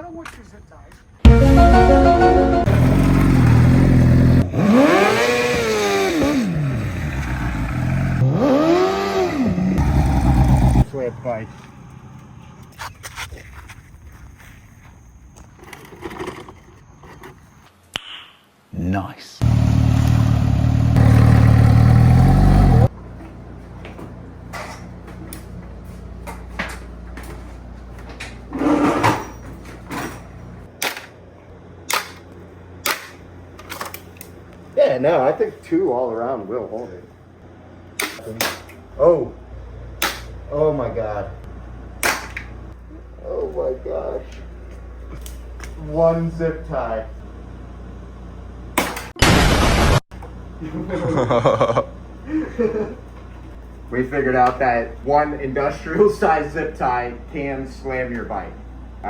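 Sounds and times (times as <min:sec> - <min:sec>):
motorcycle engine revving: 0:02.6 - 0:10.9, 0:19.4 - 0:23.0.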